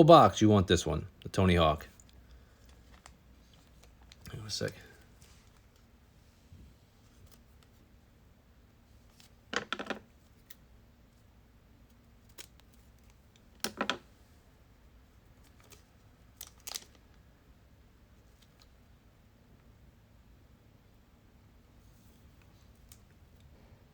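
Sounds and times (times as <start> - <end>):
plastic clicks and rustles: 12.3 - 14.0, 15.4 - 17.2.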